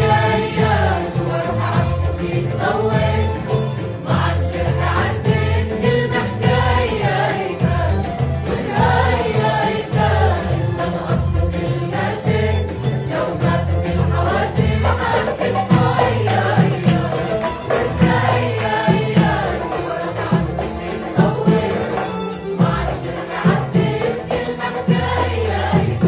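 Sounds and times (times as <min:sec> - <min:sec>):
group of voices singing: 0:00.0 - 0:26.0
percussive beat: 0:00.0 - 0:26.0.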